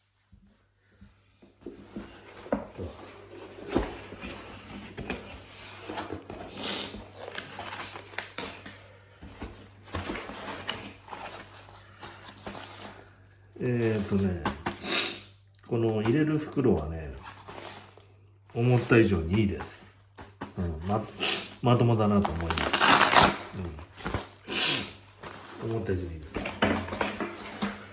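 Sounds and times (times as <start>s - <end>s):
rustling and clicks of handling: 25.0s - 27.9s.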